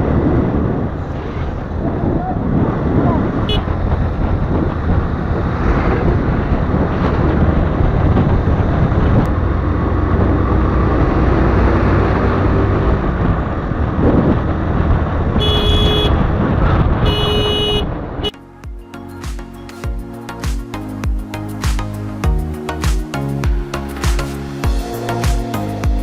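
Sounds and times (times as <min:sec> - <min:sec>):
motorcycle wind and road noise: 0:00.0 - 0:18.7
vehicle horn honking: 0:03.4 - 0:03.7, 0:15.4 - 0:16.2, 0:17.0 - 0:18.4.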